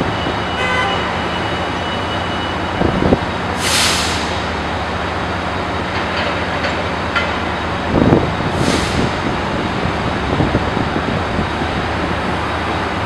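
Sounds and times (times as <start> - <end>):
train rumble and hum: 0.0 - 13.0
air hiss: 3.6 - 4.5
heavy wheel clunks: 5.9 - 9.4.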